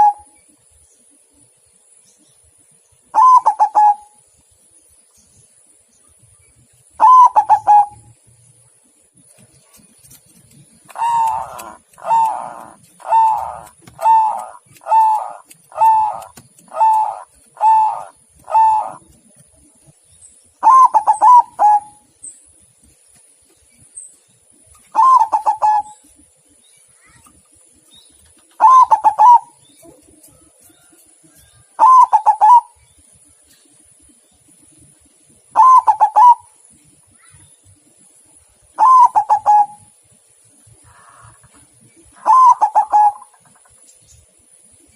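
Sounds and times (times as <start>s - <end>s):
dove cooing: 0.0s - 0.3s, 3.2s - 4.1s, 7.0s - 8.0s, 10.7s - 19.3s, 20.6s - 22.0s, 24.9s - 26.0s, 28.6s - 30.9s, 31.7s - 32.8s, 35.6s - 36.5s, 38.8s - 39.9s, 40.8s - 43.4s.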